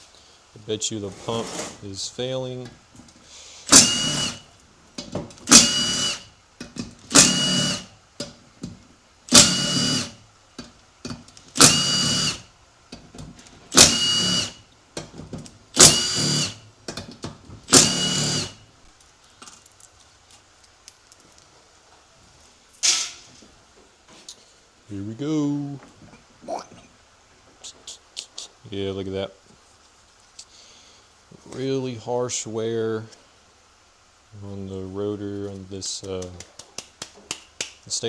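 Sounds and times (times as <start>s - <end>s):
power driver spinning: 17.7s - 18.6s.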